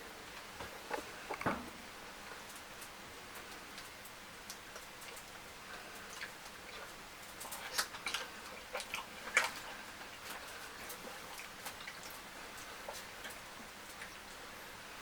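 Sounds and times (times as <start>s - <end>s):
wet chewing smacks: 4.5s - 14.4s.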